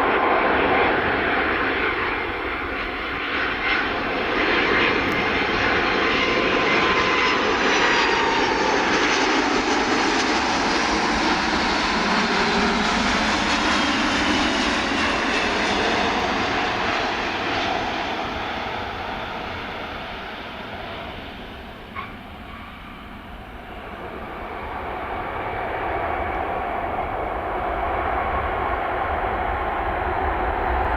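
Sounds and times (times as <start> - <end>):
jet airliner engine roar: 0.0 - 30.9.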